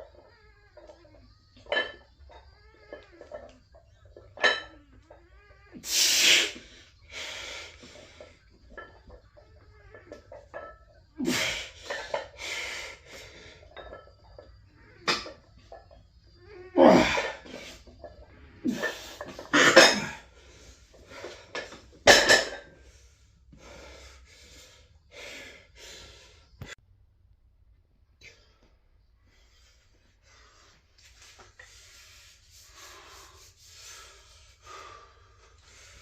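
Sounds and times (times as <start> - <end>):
man breathing hard: 22.8 - 26.8, 31.6 - 36.0.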